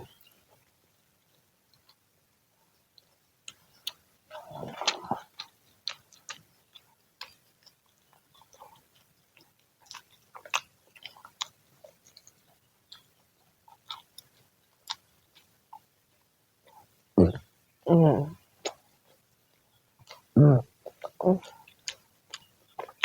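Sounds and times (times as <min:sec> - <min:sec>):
person chewing crunchy food: 0:03.0 - 0:16.9, 0:18.6 - 0:23.0.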